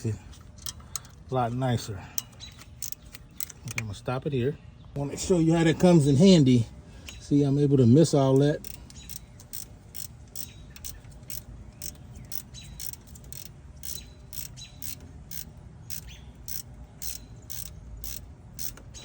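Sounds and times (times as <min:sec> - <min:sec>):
hand ratchet clicking: 0:02.2 - 0:03.8, 0:08.3 - 0:19.0.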